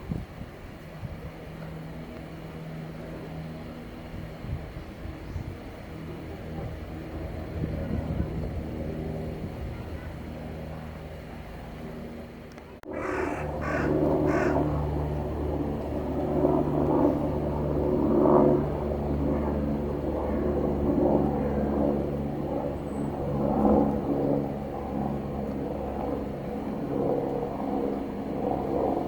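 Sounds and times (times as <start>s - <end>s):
short harsh calls: 12.9s - 14.6s.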